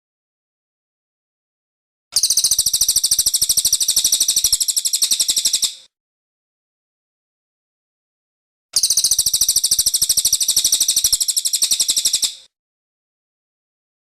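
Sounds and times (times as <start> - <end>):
bird high-pitched trill: 2.2 - 5.9, 8.8 - 12.5.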